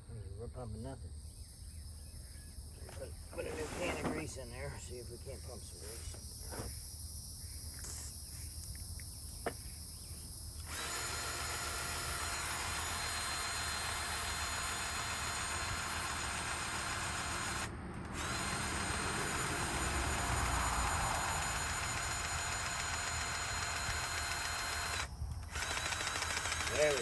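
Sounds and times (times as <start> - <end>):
grease gun motor running: 10.6 - 27.0.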